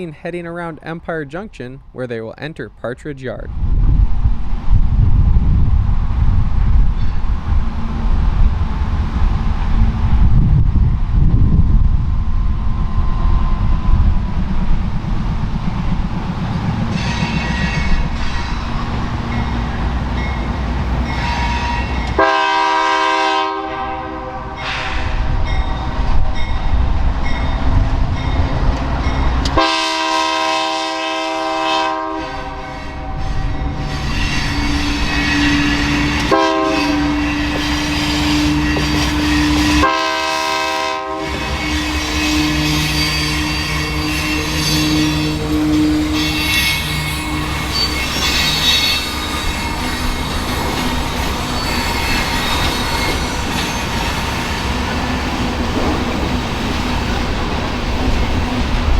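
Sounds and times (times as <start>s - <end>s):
train rumbling past: 3.4s - 58.9s
locomotive air horn: 21.0s - 25.4s, 29.6s - 33.6s, 34.2s - 50.2s
wheels clicking on rail joints: 41.3s - 58.9s.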